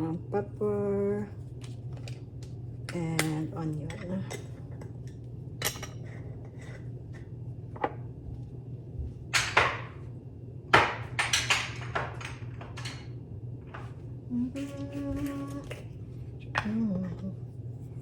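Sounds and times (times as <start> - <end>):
steady low hum: 0.0 - 18.0
knocks and clatters of utensils: 3.2 - 6.8, 9.3 - 10.0, 10.7 - 13.9.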